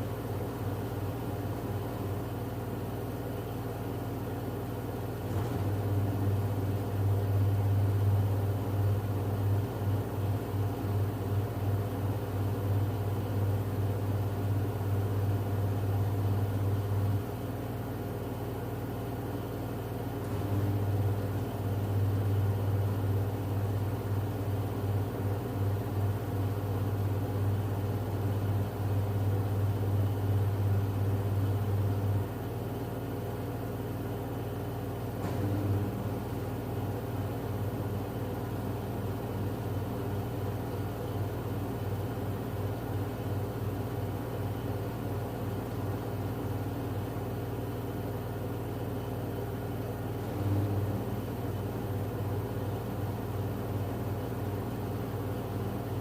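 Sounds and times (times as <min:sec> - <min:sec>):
washing machine spinning: 0:00.0 - 0:56.0.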